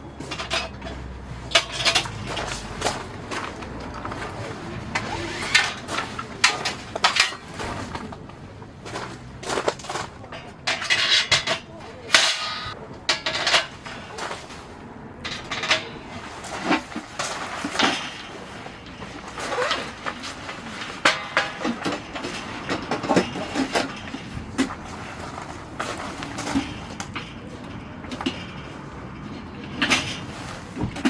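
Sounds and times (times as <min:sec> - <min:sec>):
camping gear clicks and clanks: 0:00.0 - 0:31.0
scraping or rustling: 0:00.0 - 0:31.0.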